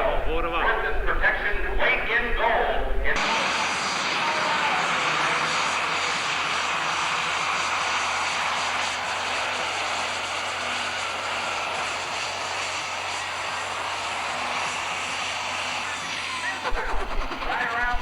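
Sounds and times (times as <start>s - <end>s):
faint high whine: 0.0s - 18.0s
tractor engine running hard: 3.2s - 18.0s.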